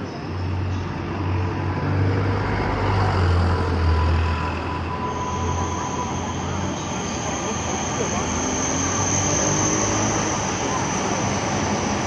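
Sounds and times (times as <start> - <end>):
train wheels rumbling on rails: 0.0 - 12.0
higher-pitched whine: 2.7 - 12.0.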